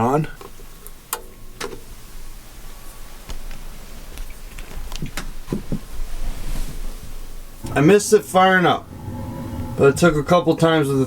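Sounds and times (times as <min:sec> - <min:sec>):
furnace humming: 0:07.4 - 0:11.0.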